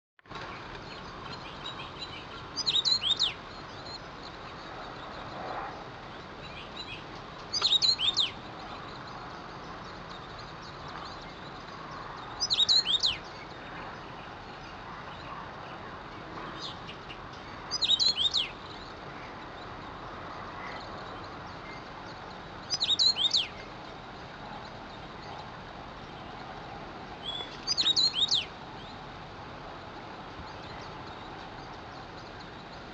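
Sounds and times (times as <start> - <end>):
finch singing: 0.5 - 5.3, 6.1 - 15.8, 16.4 - 20.0, 20.6 - 24.0, 27.2 - 29.0.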